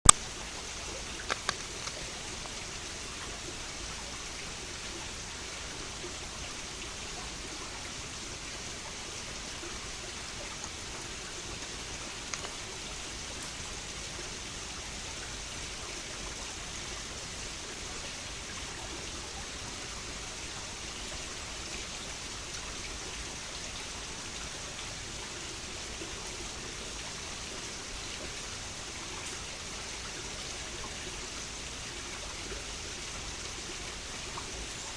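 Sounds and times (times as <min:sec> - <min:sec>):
stream babbling over rocks: 0:00.1 - 0:34.9.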